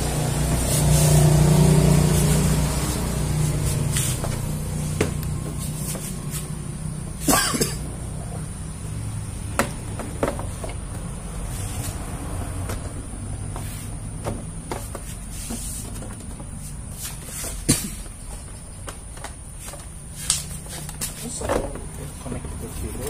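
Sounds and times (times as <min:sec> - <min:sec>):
steady low hum: 0:00.0 - 0:23.0
rubbing scrape: 0:00.5 - 0:04.5, 0:05.4 - 0:06.6, 0:14.8 - 0:16.0
sharp knocks and clicks: 0:09.5 - 0:11.1.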